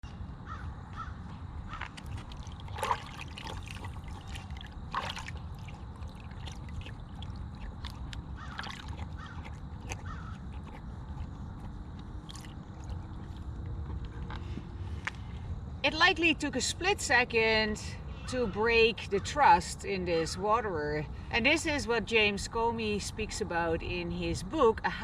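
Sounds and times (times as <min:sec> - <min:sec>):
steady low rumble: 0:00.0 - 0:18.2
bird calls: 0:08.3 - 0:10.8
bird squawks: 0:08.4 - 0:10.4.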